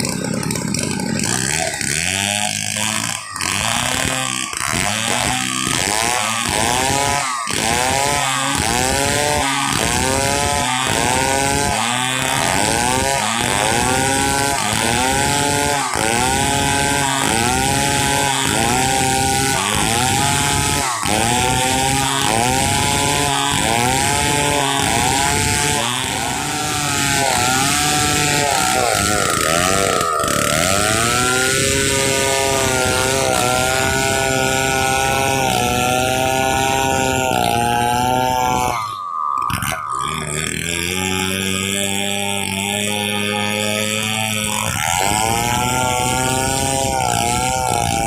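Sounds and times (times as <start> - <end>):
chainsaw cutting log: 0.0 - 48.0.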